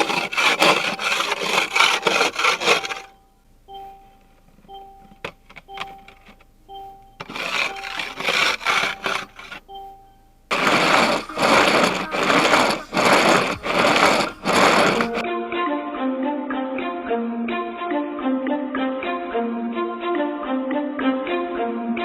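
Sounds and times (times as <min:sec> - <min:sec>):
rhythmic hand scraping: 0:00.0 - 0:03.2, 0:07.2 - 0:09.7, 0:10.5 - 0:15.2
faint two-note electronic beep: 0:03.1 - 0:06.1, 0:06.7 - 0:07.2, 0:09.6 - 0:10.4
music: 0:15.2 - 0:22.0.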